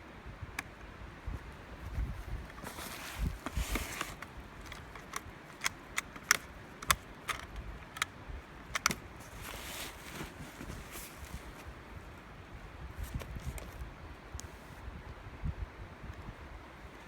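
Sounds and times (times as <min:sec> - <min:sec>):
firearm metallic clicks: 0:04.0 - 0:09.1.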